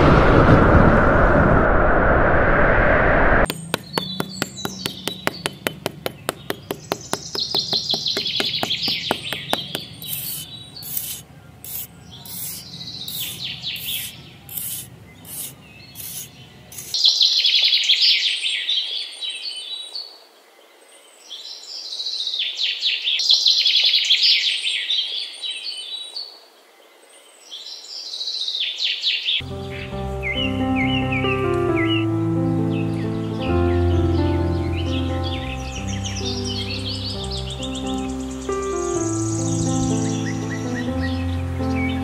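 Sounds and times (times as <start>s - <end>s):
fast run of ticks: 3.5s - 17.0s
birds chirping and singing: 3.5s - 20.0s, 27.2s - 42.0s.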